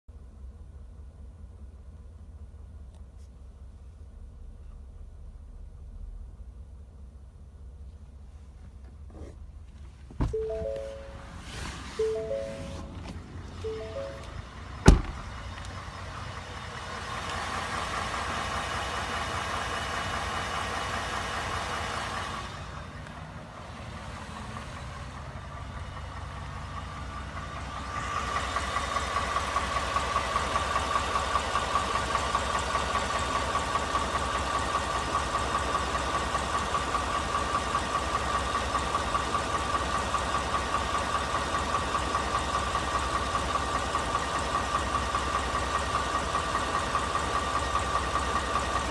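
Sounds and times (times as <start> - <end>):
engine idling with rapid knocking: 13.2 - 48.9.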